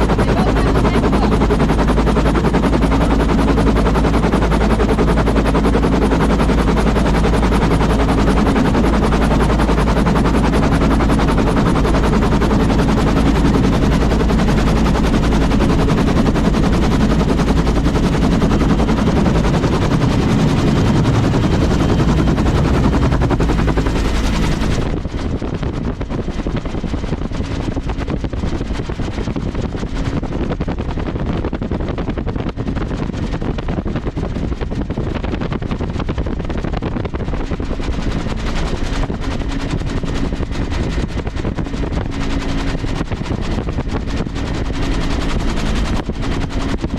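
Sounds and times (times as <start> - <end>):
aircraft engine rumbling: 0.0 - 28.2.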